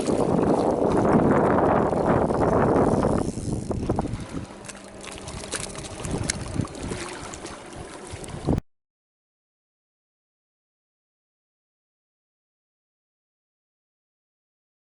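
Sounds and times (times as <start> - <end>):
wind buffeting the microphone: 0.0 - 8.6.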